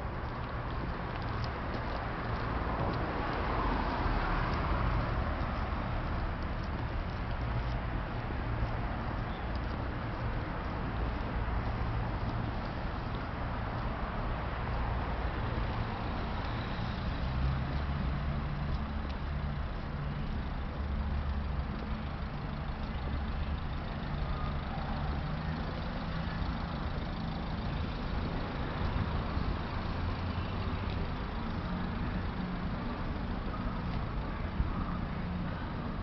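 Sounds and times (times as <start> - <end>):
road traffic noise: 0.0 - 36.0
vehicle engine running: 15.6 - 36.0.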